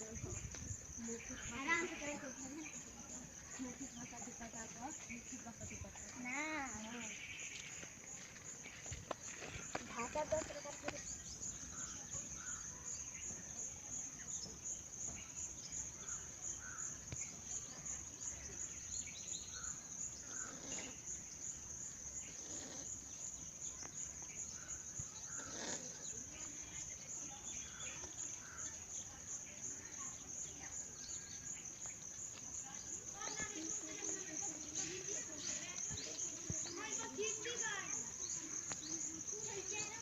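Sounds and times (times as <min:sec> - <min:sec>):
insects trilling: 0:00.0 - 0:40.0
faint bird calls: 0:14.2 - 0:32.0.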